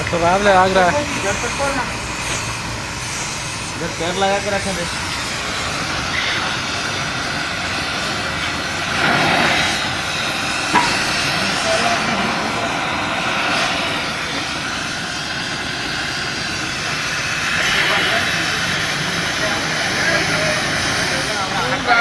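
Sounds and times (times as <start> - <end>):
sharp knock: 10.7 - 11.2.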